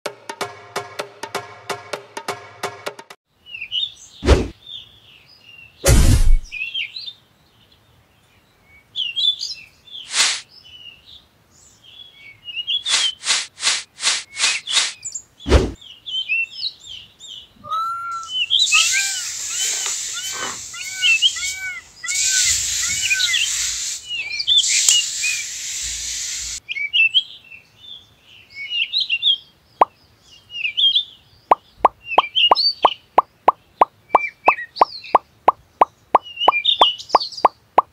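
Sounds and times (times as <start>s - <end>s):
small birds chirping: 3.4s - 37.9s
short pop-like clicks: 5.8s - 6.6s, 12.9s - 15.8s, 31.5s - 37.9s
stick scraping in sand: 10.1s - 10.4s, 12.8s - 15.8s.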